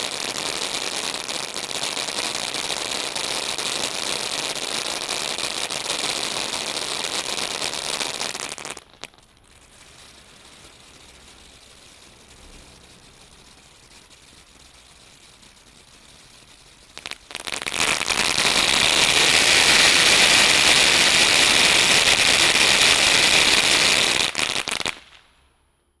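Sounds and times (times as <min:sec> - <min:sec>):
firework crackling pops: 0:00.0 - 0:25.6.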